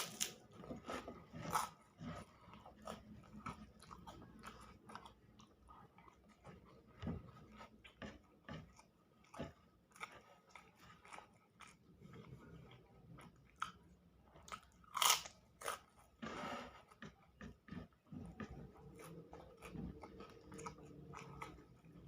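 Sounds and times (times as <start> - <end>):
person chewing and crunching food: 0.0 - 22.0.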